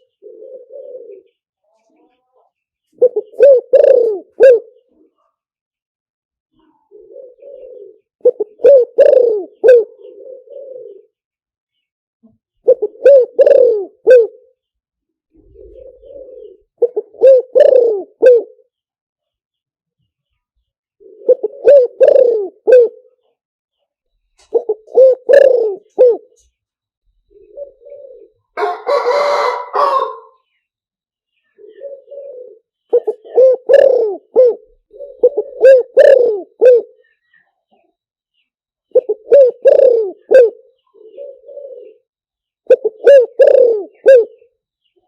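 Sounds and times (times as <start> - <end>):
dove cooing: 0.0 - 1.4, 3.0 - 5.1, 6.6 - 11.2, 12.6 - 14.6, 15.3 - 18.7, 21.0 - 23.2, 24.4 - 26.5, 27.3 - 30.5, 31.4 - 37.8, 38.9 - 44.5.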